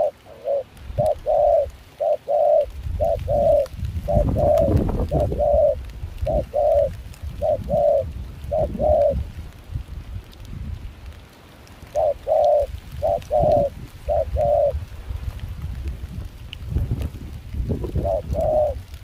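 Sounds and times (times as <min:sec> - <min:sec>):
dove cooing: 0:00.0 - 0:09.4, 0:11.8 - 0:14.8, 0:17.7 - 0:19.0
wind rumble on microphone: 0:00.8 - 0:01.8, 0:02.4 - 0:11.3, 0:11.9 - 0:19.0.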